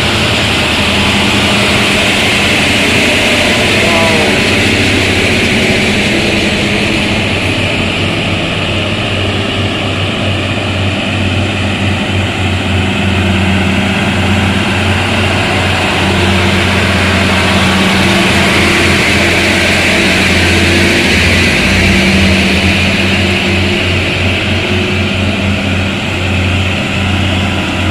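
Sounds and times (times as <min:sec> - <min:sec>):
truck engine droning: 0:00.0 - 0:27.9.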